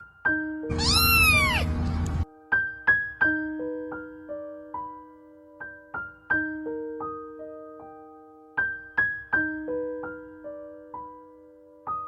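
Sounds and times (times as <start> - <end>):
soft piano music: 0.0 - 12.0
cat meowing: 0.7 - 1.8.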